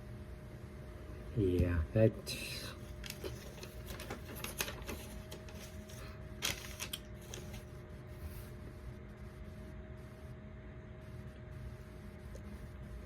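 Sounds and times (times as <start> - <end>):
faint steady tone: 7.9 - 13.0.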